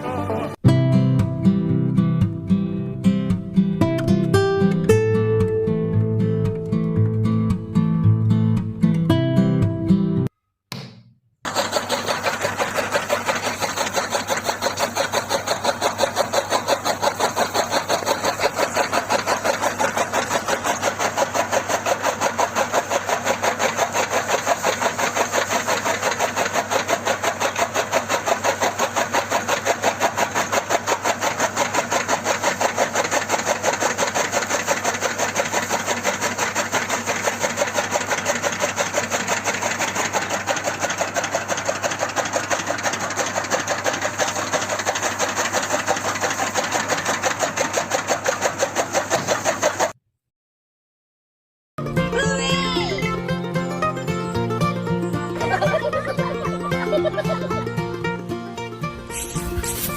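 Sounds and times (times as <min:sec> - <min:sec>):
engine chugging steadily: 0:11.5 - 0:50.0, 0:51.8 - 0:58.3.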